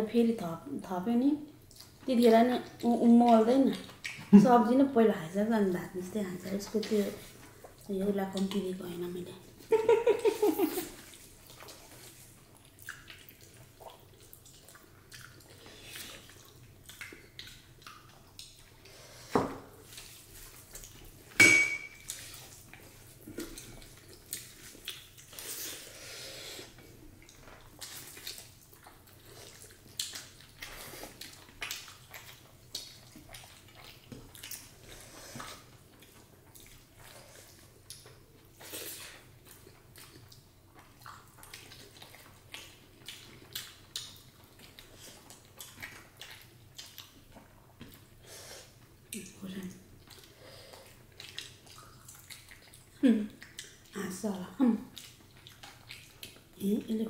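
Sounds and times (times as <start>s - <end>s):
wet mixing and chewing: 1.4s - 57.0s
plate clinking: 21.4s - 22.1s.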